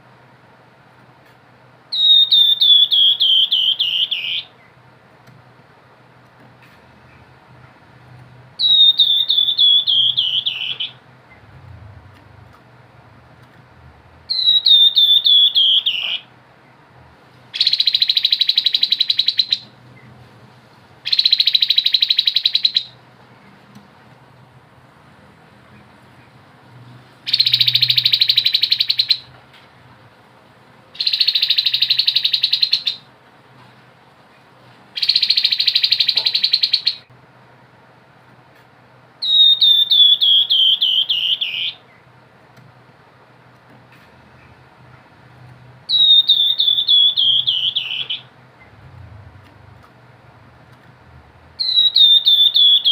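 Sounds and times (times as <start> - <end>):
bird singing: 1.9 - 4.8, 8.6 - 11.6, 14.2 - 16.8, 17.5 - 20.2, 21.0 - 23.6, 27.3 - 29.3, 31.0 - 33.1, 35.0 - 37.1, 39.2 - 42.1, 45.9 - 48.9, 51.6 - 52.9.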